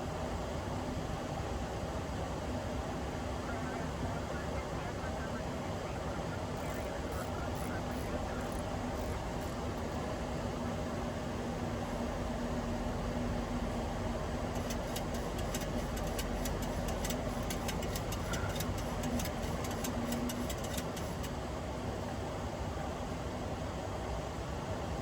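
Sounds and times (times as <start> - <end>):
airflow and engine noise: 0.0 - 25.0
irregular sharp ticks: 14.5 - 21.3.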